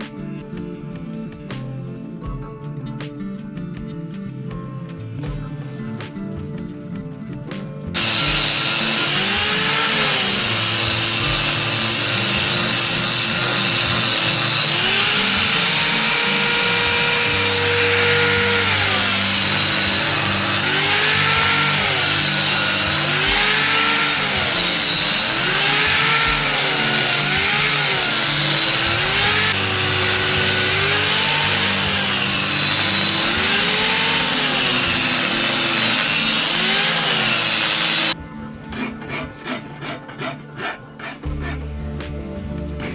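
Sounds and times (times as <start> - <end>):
electric grinder grinding steel: 8.0 - 38.2.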